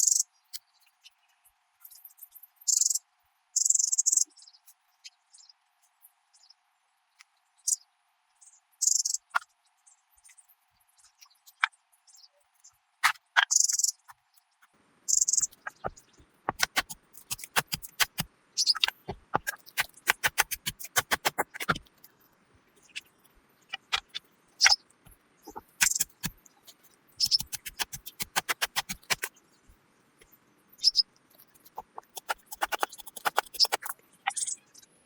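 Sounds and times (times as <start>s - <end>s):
sharp clicks and taps: 15.3s - 22.1s, 23.7s - 29.3s, 31.4s - 34.4s.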